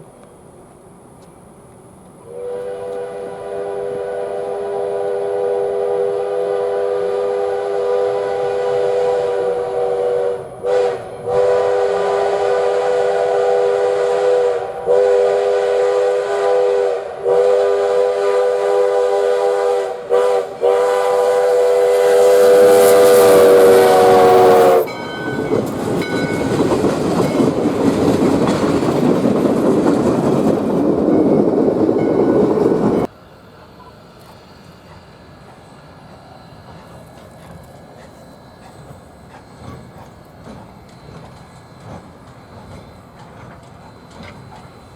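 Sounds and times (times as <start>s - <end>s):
train rumbling past: 0.0s - 44.9s
steam locomotive chime whistle: 2.2s - 27.8s, 31.0s - 44.9s.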